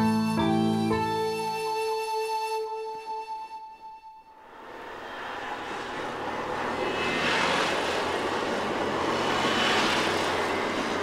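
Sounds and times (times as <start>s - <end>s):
diesel railcar passing: 4.3s - 11.0s.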